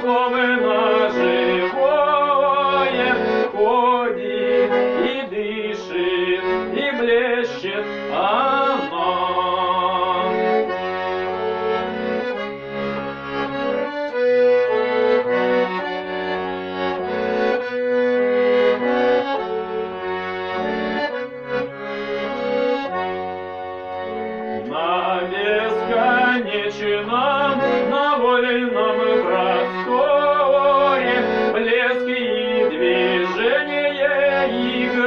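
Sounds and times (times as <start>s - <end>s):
man singing: 0.0s - 10.6s, 24.6s - 35.0s
instrumental music with sustained chords: 0.0s - 35.0s.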